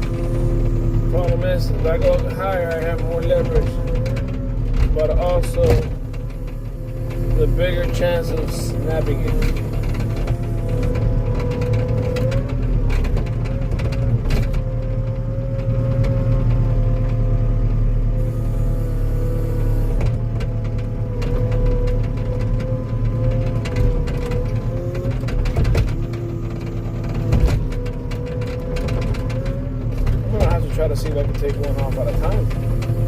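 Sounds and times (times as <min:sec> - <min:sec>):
hydraulic whine: 0:00.0 - 0:16.2, 0:18.0 - 0:33.0
diesel engine under load: 0:00.0 - 0:33.0.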